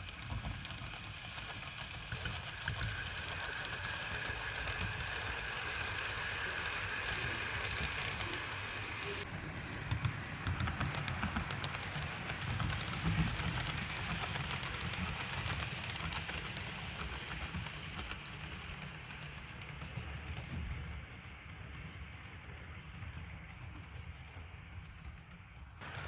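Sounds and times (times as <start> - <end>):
model train motor whine: 0.0 - 18.9
wheels clicking over track: 0.0 - 26.0.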